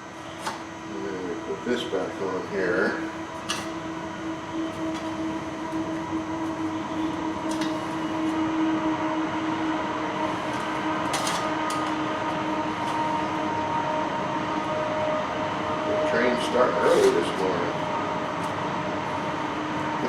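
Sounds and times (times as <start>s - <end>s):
train rumbling by: 0.0s - 20.0s.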